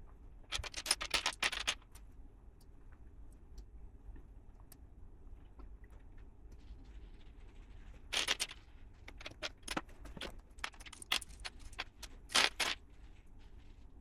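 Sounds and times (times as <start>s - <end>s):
plastic pieces clattering and clicking: 0.5s - 2.0s, 8.1s - 12.8s.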